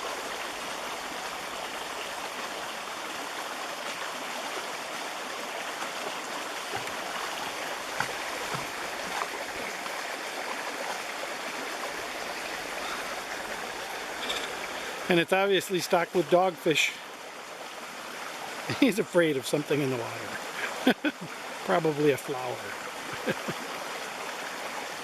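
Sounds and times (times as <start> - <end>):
small water splashes: 0.0 - 15.3
stream flowing over rocks: 0.0 - 25.0.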